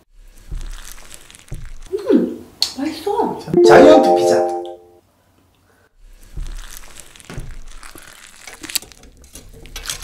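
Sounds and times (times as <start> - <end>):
chewing soft gummy: 0.2 - 2.0, 6.1 - 10.0.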